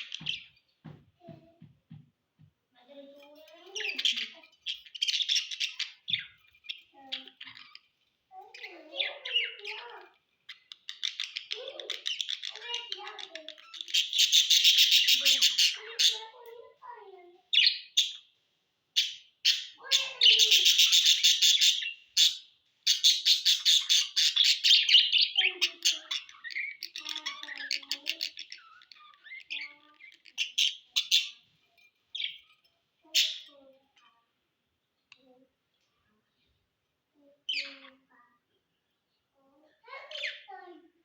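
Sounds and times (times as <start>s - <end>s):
budgerigars chattering: 10.6s - 16.3s, 19.0s - 31.4s.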